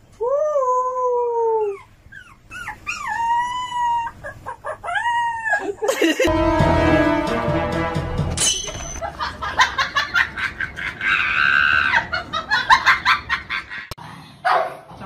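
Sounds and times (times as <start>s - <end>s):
puppy howling: 0.6s - 5.8s
puppy yipping: 1.6s - 5.8s.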